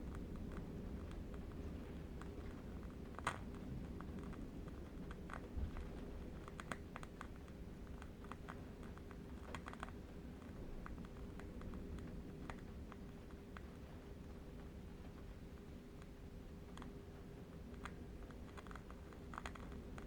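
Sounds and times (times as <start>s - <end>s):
faint hum: 0.0s - 20.0s
low steady rumble: 0.0s - 20.0s.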